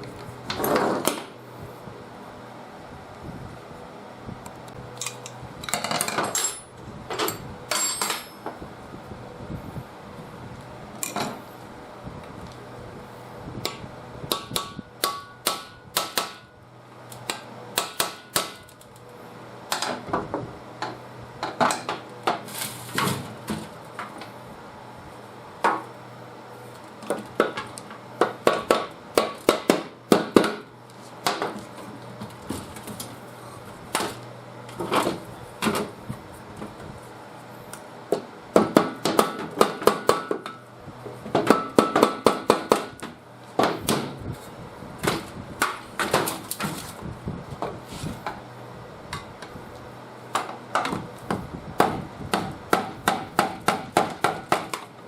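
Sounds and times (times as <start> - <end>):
metal tools tapping on engine: 5.0 - 8.5.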